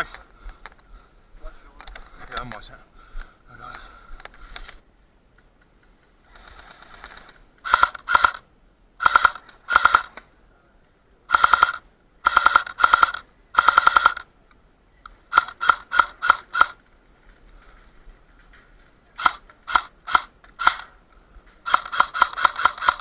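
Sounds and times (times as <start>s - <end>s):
airsoft rifle full-auto bursts: 6.3s - 8.4s, 9.0s - 10.2s, 11.3s - 14.3s, 15.3s - 16.8s, 19.2s - 20.9s, 21.6s - 23.0s.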